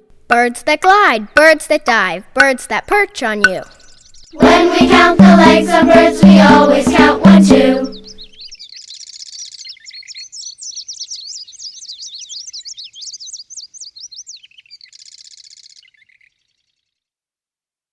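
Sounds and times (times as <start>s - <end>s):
bird chirps and twitters: 2.7s - 4.4s, 7.8s - 16.8s
buzzy bird trill: 6.2s - 16.7s.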